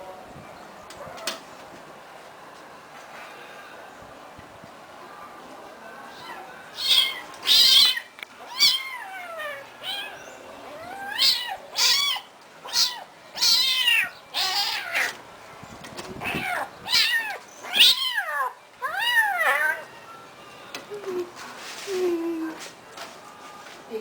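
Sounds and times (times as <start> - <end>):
cat meowing: 6.1 - 15.1, 16.2 - 19.8.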